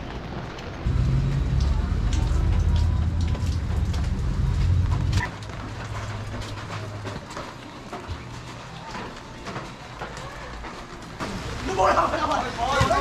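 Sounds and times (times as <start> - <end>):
rain on street: 0.0 - 13.0
loud low rumble: 0.8 - 7.0.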